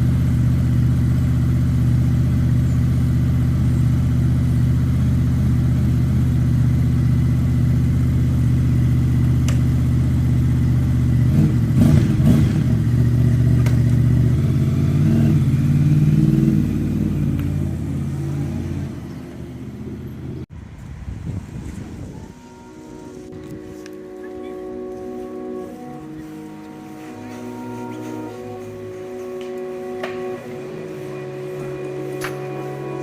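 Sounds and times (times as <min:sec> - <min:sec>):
motorcycle engine running: 0:00.0 - 0:20.5.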